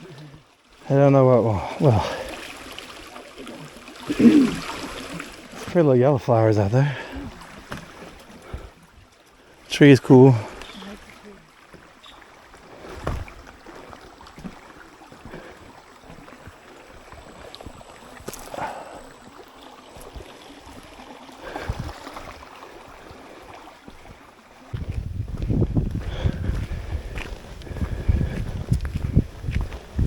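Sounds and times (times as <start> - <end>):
wind: 0.0 - 30.0
footsteps on dirt trail: 12.8 - 19.0, 23.8 - 30.0
wind buffeting microphone: 21.5 - 22.0, 24.7 - 30.0.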